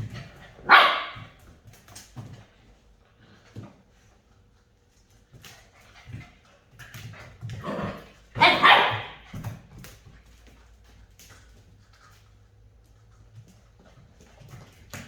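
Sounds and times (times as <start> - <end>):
puppies scuffling: 0.0 - 15.0
puppies yapping: 0.6 - 1.3, 8.4 - 9.2
puppy yips: 8.4 - 9.2.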